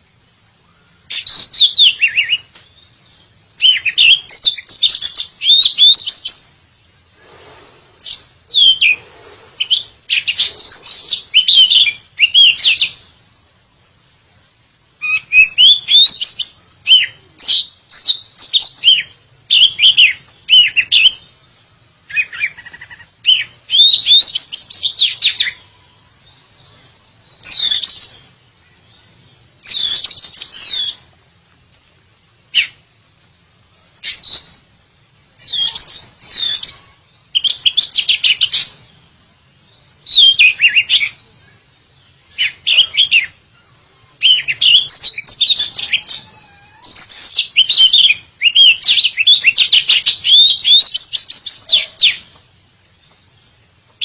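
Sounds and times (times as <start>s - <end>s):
bird singing whistled phrases: 0.7s - 6.6s, 8.0s - 9.0s, 9.6s - 13.1s, 15.0s - 21.3s, 22.1s - 31.1s, 34.0s - 34.6s, 35.4s - 38.8s, 40.0s - 41.6s, 42.3s - 43.4s, 44.1s - 52.3s.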